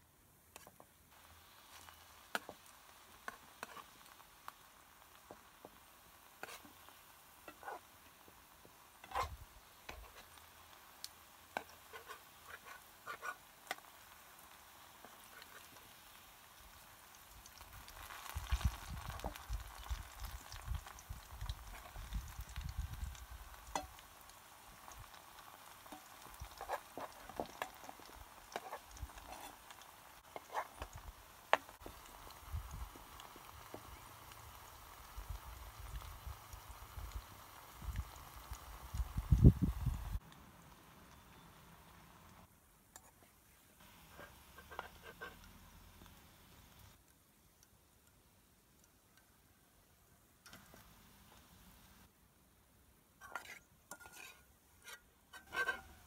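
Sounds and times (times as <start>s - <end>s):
plantain sizzling in hot oil: 0.4s - 56.0s
metal spoon scraping a pan: 3.2s - 4.2s, 6.4s - 7.9s, 8.9s - 10.4s, 11.5s - 15.8s, 23.7s - 24.0s, 24.8s - 31.8s, 44.1s - 45.5s, 53.2s - 56.0s.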